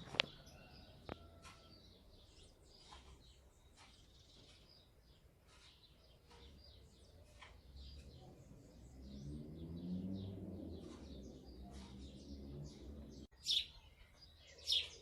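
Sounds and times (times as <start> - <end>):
sparrows chirping: 0.0 - 15.0.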